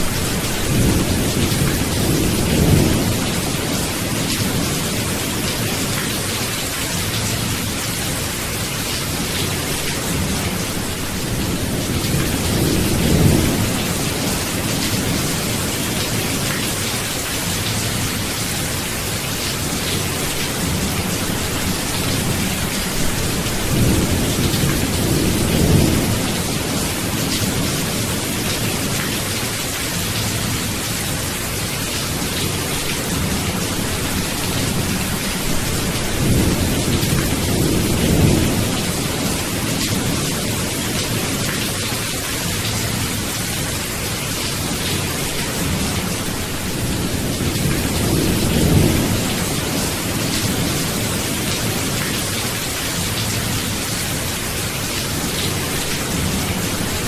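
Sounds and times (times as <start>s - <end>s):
low rolling thunder: 0.0s - 5.9s, 9.4s - 16.4s, 19.8s - 29.2s, 32.4s - 41.6s, 44.7s - 52.1s.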